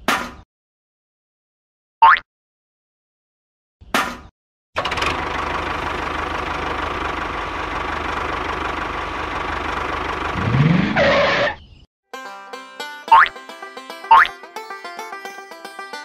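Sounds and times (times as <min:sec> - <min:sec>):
tractor engine running and revving: 0:04.8 - 0:11.5.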